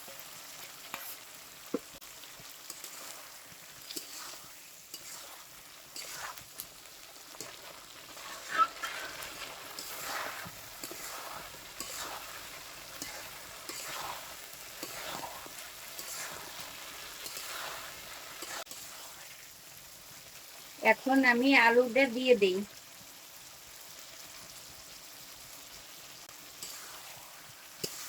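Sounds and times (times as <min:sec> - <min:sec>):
scraping stir in pan: 0:00.0 - 0:19.4, 0:26.4 - 0:28.0
chicken sizzling in a pan: 0:00.0 - 0:28.0.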